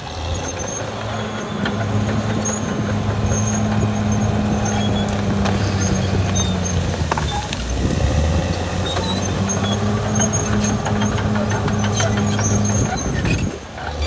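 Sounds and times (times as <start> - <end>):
bulldozer diesel engine running: 0.0 - 14.0
short high squeaks and clicks: 0.4 - 7.9, 8.8 - 14.0.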